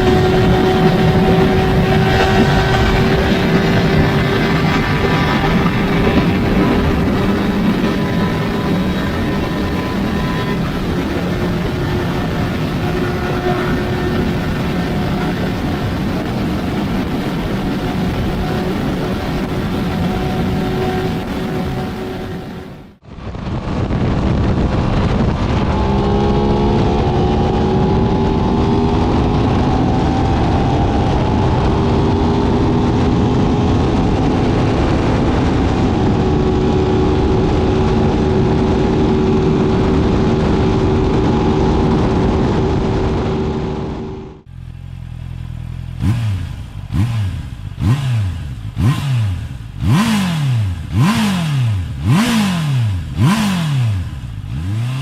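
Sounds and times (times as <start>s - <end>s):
motorcycle throttle blips: 0.0s - 23.0s
wind rush: 0.0s - 44.5s
motorcycle engine at high speed: 0.0s - 55.0s.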